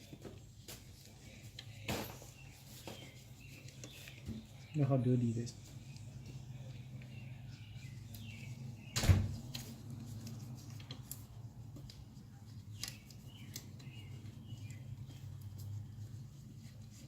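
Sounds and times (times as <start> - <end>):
birds chirping: 2.2 - 9.5, 11.9 - 16.0.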